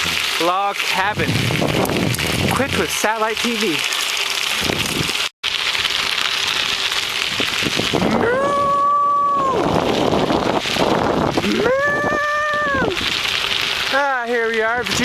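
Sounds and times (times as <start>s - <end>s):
wind buffeting microphone: 1.0s - 3.0s, 4.6s - 5.2s, 7.2s - 13.9s, 14.6s - 15.0s.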